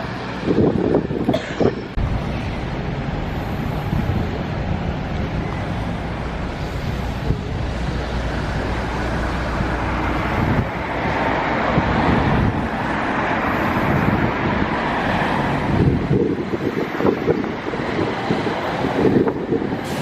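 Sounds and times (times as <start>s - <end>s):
vehicle running: 0.0s - 20.0s
wind noise on microphone: 0.0s - 20.0s
low rumble: 1.9s - 16.6s.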